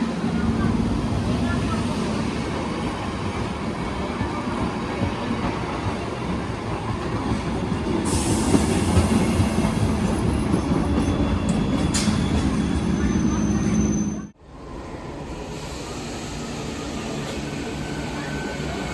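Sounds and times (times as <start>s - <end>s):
train wheels rumbling on rails: 0.0s - 14.4s.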